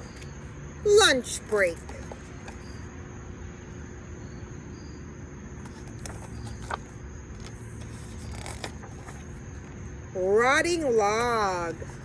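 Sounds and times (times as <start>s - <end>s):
high-pitched insect trill: 4.2s - 5.1s.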